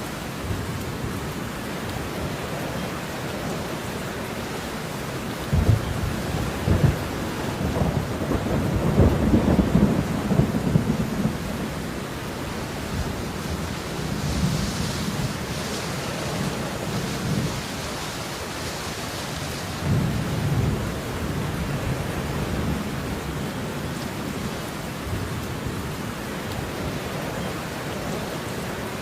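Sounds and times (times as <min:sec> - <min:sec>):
steady rain: 0:00.0 - 0:29.0
thunder rumbles: 0:05.4 - 0:26.0.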